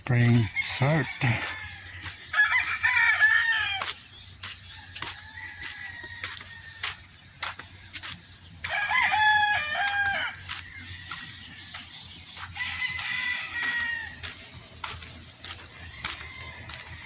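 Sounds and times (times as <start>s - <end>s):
faint rooster crow: 0.6s - 3.9s, 4.8s - 7.0s, 8.6s - 11.8s, 12.4s - 14.4s, 15.8s - 17.0s
rooster crowing: 0.7s - 3.9s, 5.2s - 7.0s, 8.6s - 11.8s, 12.4s - 14.3s, 15.8s - 17.0s.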